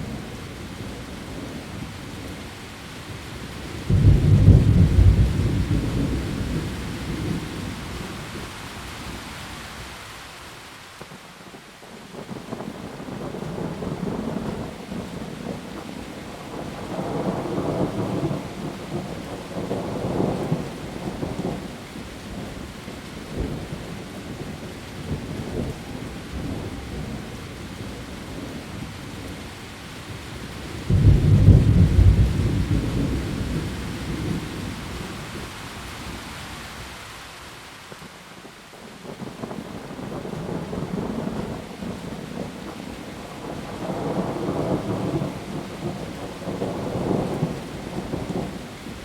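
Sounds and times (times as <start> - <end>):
heavy rain on leaves: 0.0 - 49.0
low rolls of thunder: 3.8 - 8.4, 30.8 - 35.5, 39.0 - 49.0
loud thunderclap: 3.9 - 7.4, 30.9 - 34.4.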